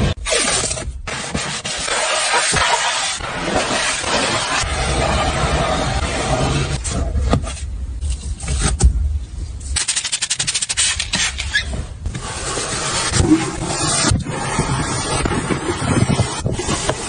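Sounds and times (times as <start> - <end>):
wash brushes slapping car: 1.1 - 6.8.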